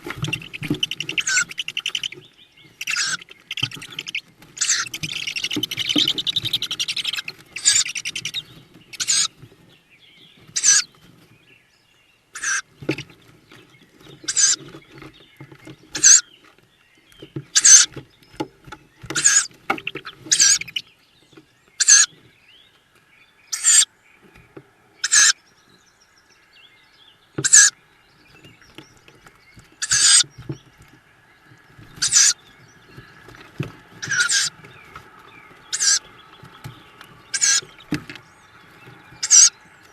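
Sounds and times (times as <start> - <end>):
owl chicks hissing begging calls: 0.0 - 9.4, 10.5 - 10.9, 12.4 - 12.7, 14.3 - 14.7, 15.9 - 16.2, 17.6 - 17.9, 19.2 - 20.9, 21.8 - 22.1, 23.5 - 23.9, 25.0 - 25.4, 27.4 - 27.8, 29.8 - 30.4, 31.8 - 32.5, 34.0 - 37.9, 38.7 - 39.8.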